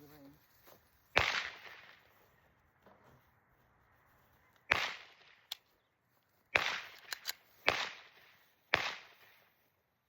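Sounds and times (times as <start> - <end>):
loud gunshots echoing: 1.2 - 2.0, 4.7 - 5.3, 6.5 - 9.4.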